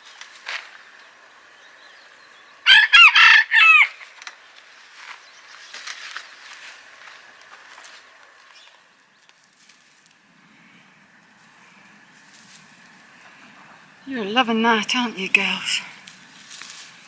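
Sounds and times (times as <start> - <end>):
rooster crowing: 2.6 - 4.0.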